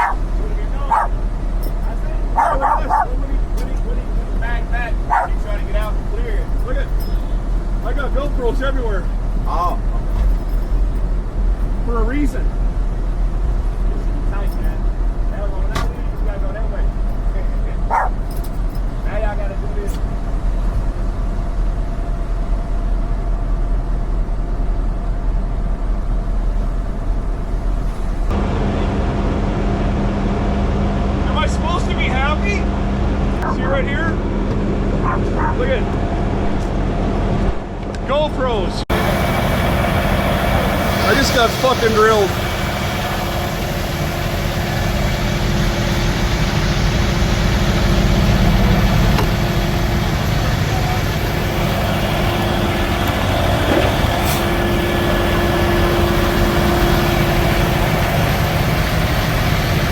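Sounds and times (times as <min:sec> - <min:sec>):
faint constant hum: 0:00.0 - 0:47.0
diesel truck engine idling: 0:00.0 - 0:59.9.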